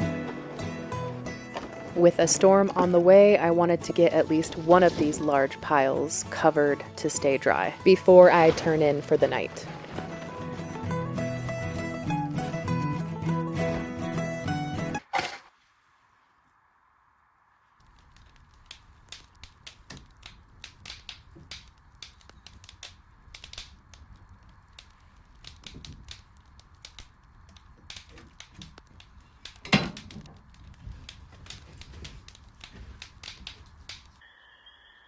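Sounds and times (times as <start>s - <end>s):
dry sticks crackling and snapping: 1.2s - 13.2s, 17.8s - 34.2s
loud wood crack: 7.8s - 14.0s, 17.8s - 34.2s.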